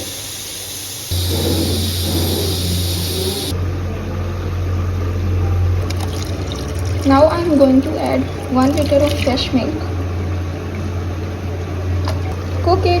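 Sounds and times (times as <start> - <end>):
pot heating on stove hum and hiss: 0.0 - 3.6.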